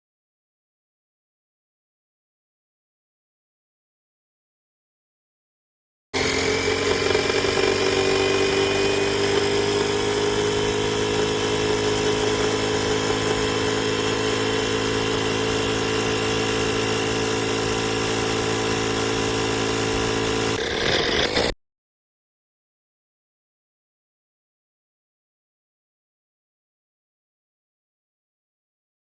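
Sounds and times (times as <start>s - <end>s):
tire inflator compressor humming: 6.2s - 21.6s.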